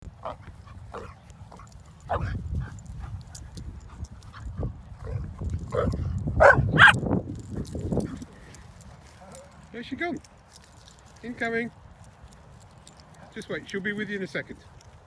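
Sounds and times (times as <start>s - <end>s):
dog barks: 0.2s - 2.4s, 5.0s - 7.0s
dogs yipping and whining: 5.0s - 7.0s.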